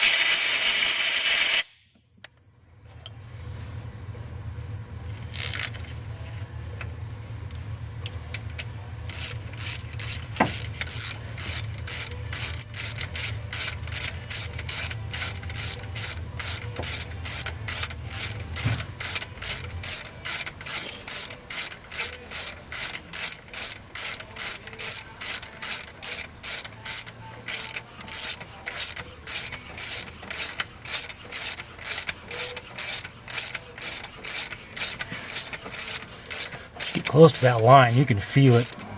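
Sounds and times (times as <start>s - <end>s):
ratchet wrench clicking: 9.1s - 38.9s.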